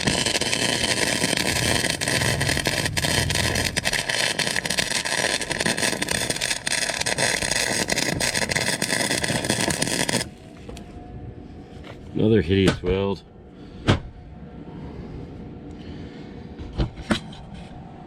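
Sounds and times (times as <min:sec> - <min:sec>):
welding arc crackling: 0:00.0 - 0:10.4.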